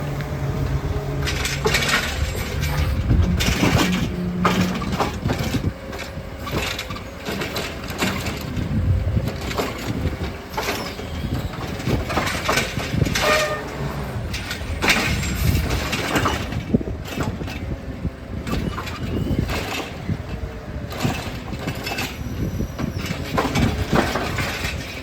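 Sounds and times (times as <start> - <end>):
garbage truck engine rumbling: 0.0 - 25.0
brief squeal: 10.6 - 11.6, 18.6 - 19.5, 21.9 - 23.3.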